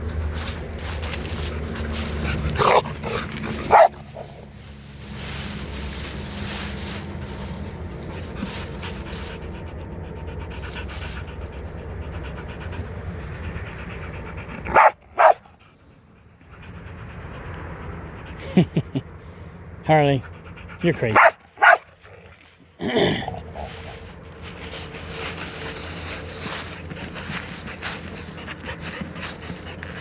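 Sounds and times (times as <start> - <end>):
dog barking: 3.7 - 4.4, 14.7 - 15.4, 21.1 - 21.9
dog panting: 7.3 - 18.5, 20.2 - 21.8, 23.5 - 30.0.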